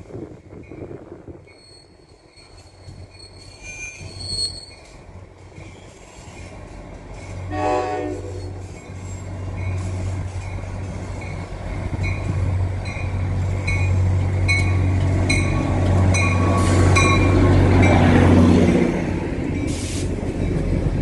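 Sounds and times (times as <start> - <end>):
diesel train engine drone: 0.0 - 21.0
wheel and rail noise: 0.0 - 21.0
train bell ringing: 8.3 - 18.1, 19.5 - 20.8.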